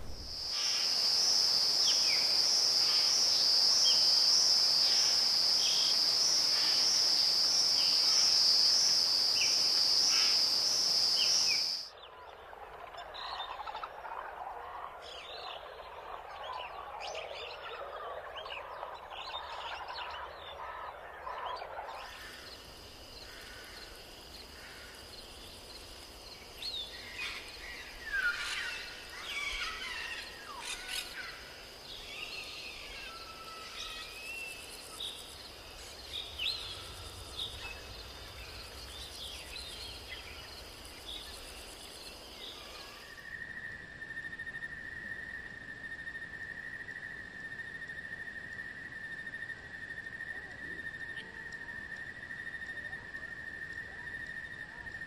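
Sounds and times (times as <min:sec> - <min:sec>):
chorus of chirping calls: 0:26.5 - 0:41.3.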